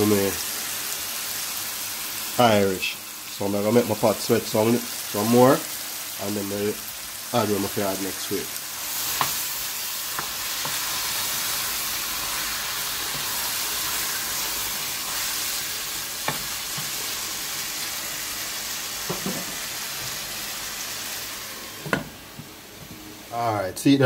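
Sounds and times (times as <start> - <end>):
chicken sizzling in a pot: 0.0 - 23.4
glass lid placed on pot: 19.1 - 19.6
wooden spoon knocking pot: 19.1 - 19.6.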